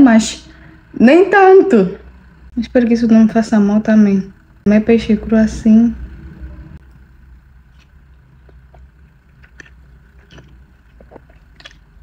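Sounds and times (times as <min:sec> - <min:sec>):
steady low hum: 0:00.0 - 0:12.0
person chewing: 0:07.7 - 0:12.0.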